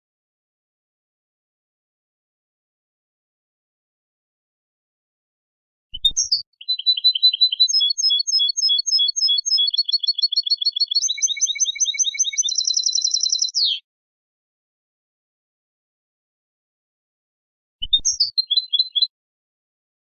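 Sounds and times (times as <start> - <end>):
goldfinch singing: 6.2 - 13.8, 17.9 - 19.1.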